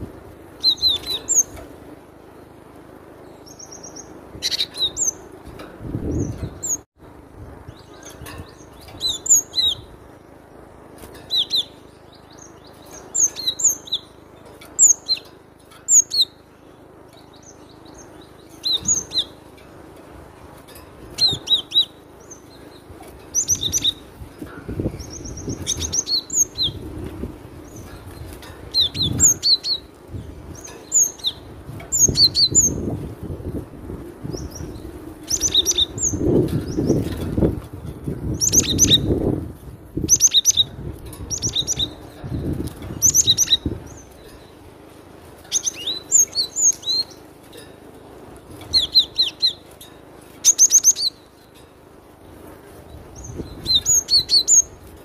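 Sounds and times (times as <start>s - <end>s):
bird whistled calls: 0.6s - 1.6s, 30.9s - 32.8s, 48.7s - 49.6s, 50.4s - 51.2s, 53.2s - 54.8s
bird trill: 0.6s - 1.7s, 3.2s - 5.4s, 7.7s - 19.7s, 20.6s - 26.8s, 27.6s - 33.0s, 34.3s - 37.5s, 38.2s - 39.4s, 40.0s - 42.2s, 42.9s - 44.6s, 45.4s - 47.8s, 48.6s - 51.6s, 53.1s - 54.9s.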